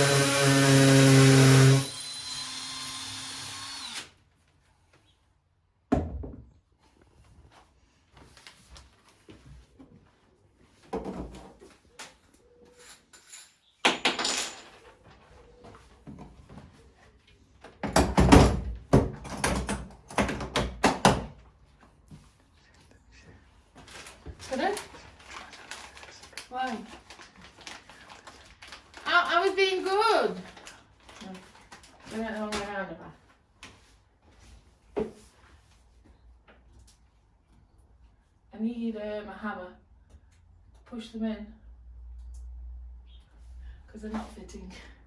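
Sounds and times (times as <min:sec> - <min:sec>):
electric drill drilling: 0:00.0 - 0:04.2
hard objects knocking and clattering: 0:17.8 - 0:21.3.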